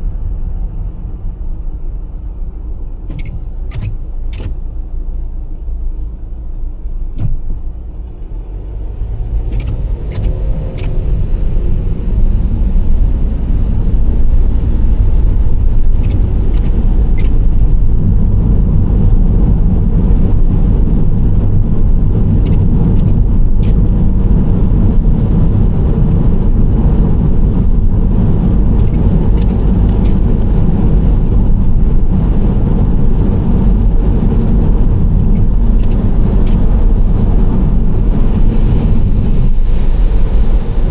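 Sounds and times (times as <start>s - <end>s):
car engine and road rumble: 0.0s - 40.9s.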